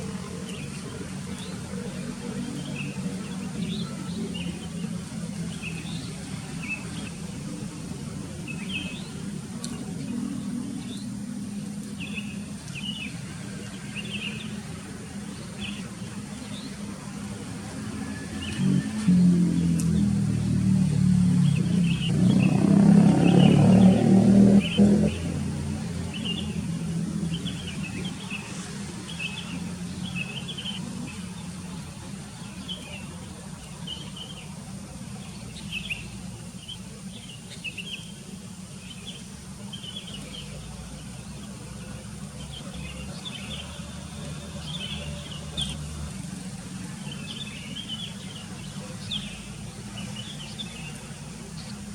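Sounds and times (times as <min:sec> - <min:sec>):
bulbuls chirping: 0:21.4 - 0:51.9.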